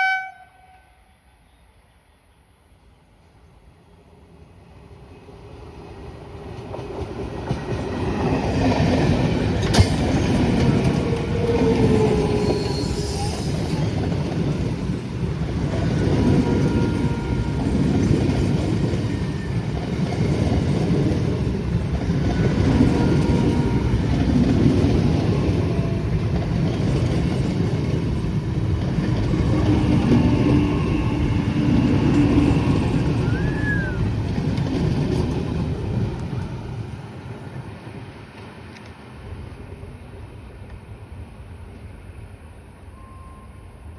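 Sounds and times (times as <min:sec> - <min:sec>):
train wheels rumbling on rails: 0:04.3 - 0:43.7
wheel squeals: 0:11.8 - 0:13.8.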